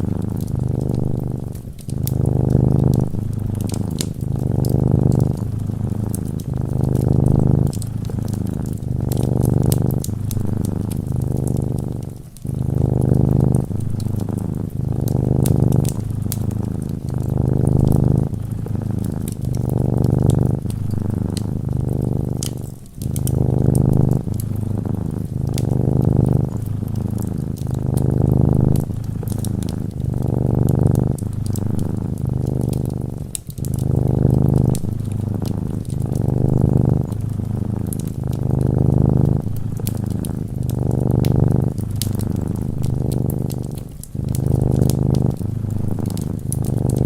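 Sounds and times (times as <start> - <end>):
cat purring: 0.0 - 47.0
fireplace crackling: 0.0 - 47.0.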